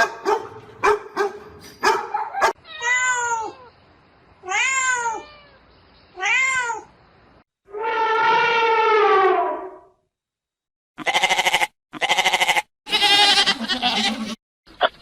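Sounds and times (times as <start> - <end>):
cat meowing: 2.6 - 3.7, 4.4 - 6.9.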